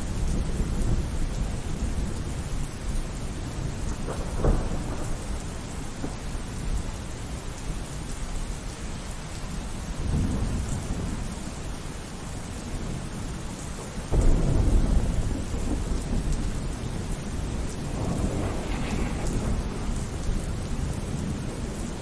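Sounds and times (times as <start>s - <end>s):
steady rainfall: 0.0s - 22.0s
rolling thunder: 14.0s - 22.0s.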